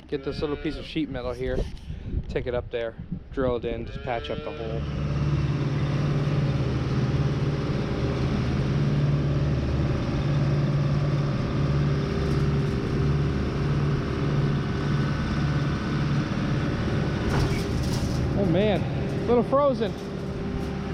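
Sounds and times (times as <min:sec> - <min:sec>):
skid loader engine running: 0:04.6 - 0:20.9.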